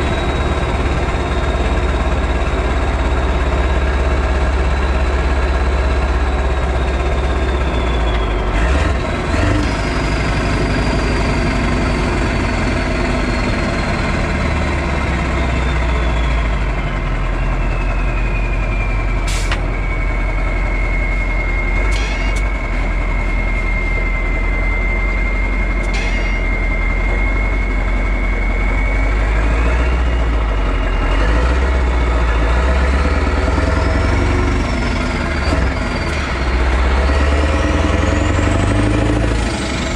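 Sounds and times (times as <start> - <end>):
diesel truck engine rumbling: 0.0 - 39.9
high whistle sliding in pitch: 10.5 - 31.2.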